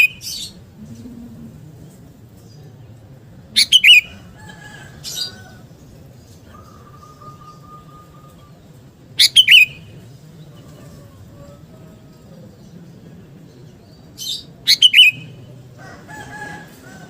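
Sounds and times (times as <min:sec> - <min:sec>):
bird chirpy calls: 0:00.0 - 0:00.7, 0:03.5 - 0:04.4, 0:05.0 - 0:12.8, 0:13.7 - 0:15.5.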